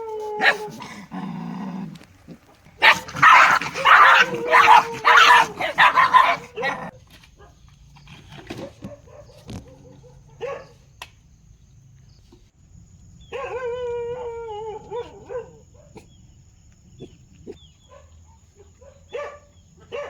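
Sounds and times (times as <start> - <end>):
dog wavering cry: 0.0 - 1.2, 2.8 - 6.9
dog yipping: 0.4 - 1.0, 2.8 - 7.0
dog barking: 0.4 - 1.1, 2.8 - 7.6, 8.5 - 10.9, 13.3 - 13.7, 14.9 - 16.2, 17.0 - 20.0.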